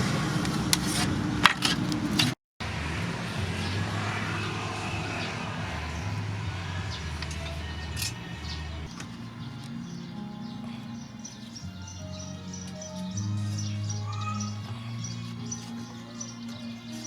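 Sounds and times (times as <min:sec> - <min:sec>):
background music with low bass: 0:02.7 - 0:17.0.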